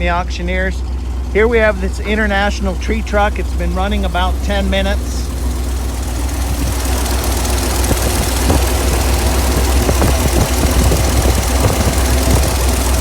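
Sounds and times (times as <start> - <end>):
truck engine idling: 0.0 - 13.0
short knocks: 7.9 - 13.0.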